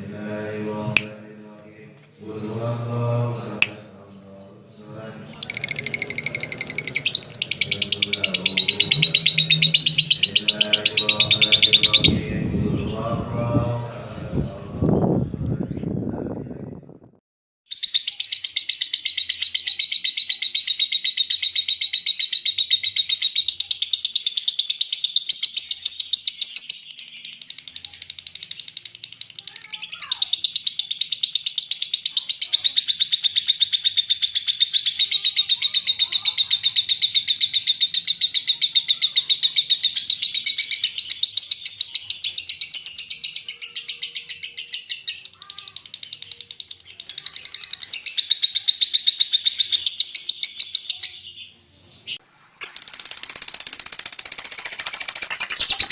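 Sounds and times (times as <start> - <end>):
lovebird fast high chatter: 5.3 - 12.2, 27.4 - 49.8, 52.6 - 55.9.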